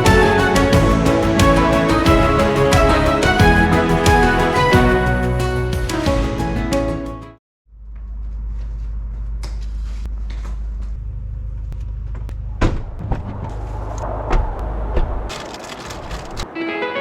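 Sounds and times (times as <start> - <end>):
car driving rumble: 10.1 - 16.5.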